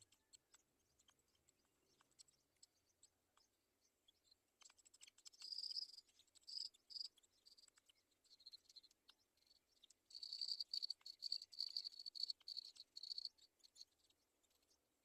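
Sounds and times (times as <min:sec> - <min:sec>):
insect chirping: 0:04.2 - 0:14.8
soft clicks: 0:07.0 - 0:08.0.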